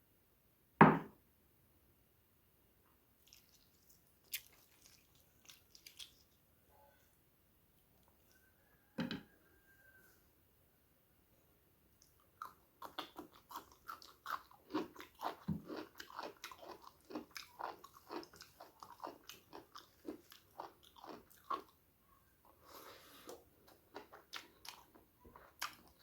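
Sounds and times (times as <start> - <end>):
person chewing food: 3.2 - 6.5, 12.0 - 21.8, 22.5 - 26.0.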